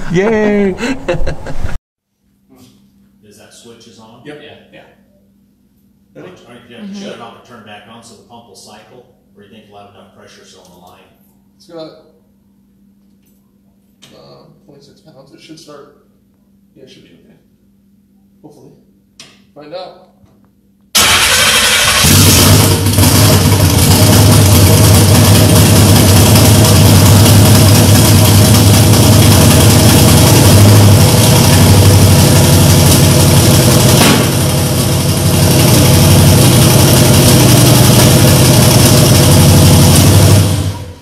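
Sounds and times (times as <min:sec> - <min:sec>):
car engine starting and running: 0:21.0 - 0:41.0.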